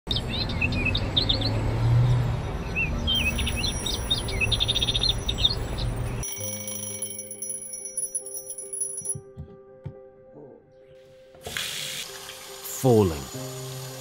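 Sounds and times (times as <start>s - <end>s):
birds chirping and trilling: 0.1s - 6.3s.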